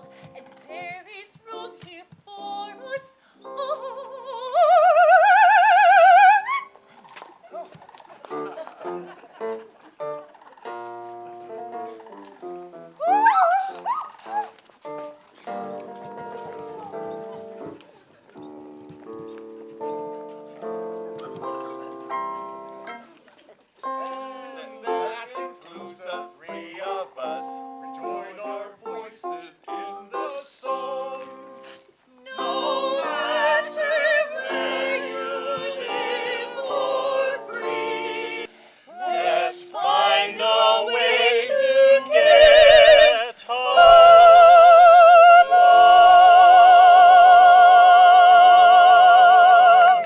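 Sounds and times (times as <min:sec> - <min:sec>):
person singing with vibrato: 0:32.2 - 0:50.0.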